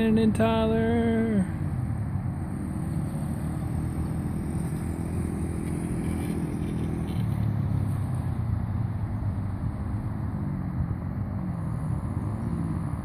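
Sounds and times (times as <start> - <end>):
dirt bike engines buzzing: 0.0 - 13.0.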